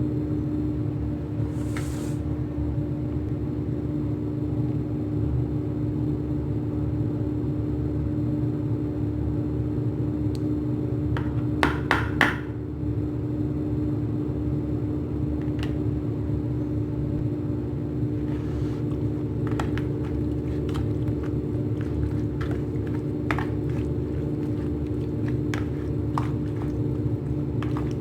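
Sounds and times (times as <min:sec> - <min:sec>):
machine hum: 0:13.6 - 0:28.0.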